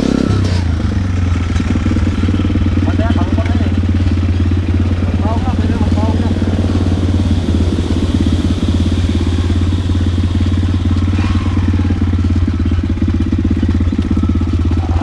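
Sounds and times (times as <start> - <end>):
dirt bike engine idling: 0.0 - 15.0.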